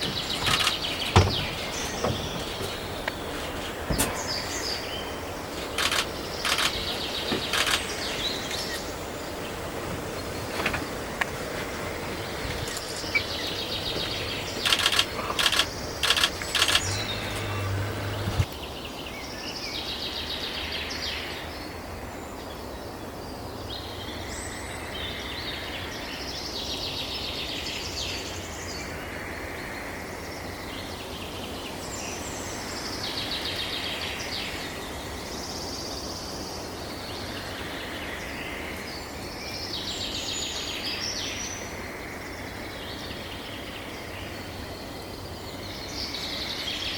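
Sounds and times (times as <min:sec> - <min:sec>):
sharp clicks or knocks: 0:00.0 - 0:04.3, 0:13.9 - 0:18.5
small birds chattering song: 0:00.0 - 0:21.7
outdoor background hiss: 0:00.0 - 0:46.9.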